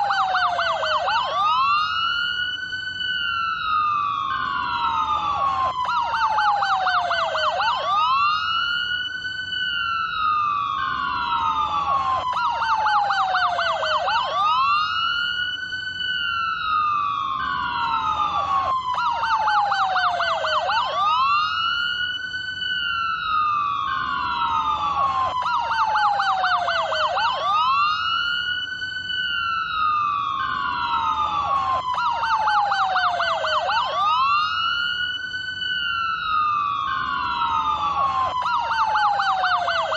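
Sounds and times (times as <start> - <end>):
police siren wailing and yelping: 0.0 - 39.9.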